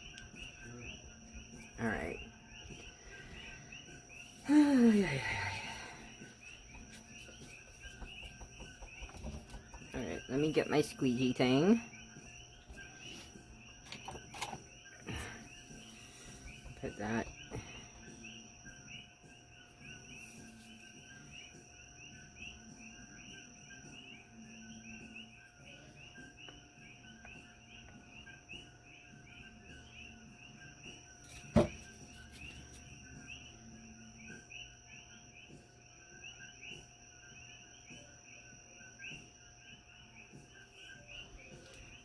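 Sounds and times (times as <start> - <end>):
insects chirping: 0.0 - 42.0.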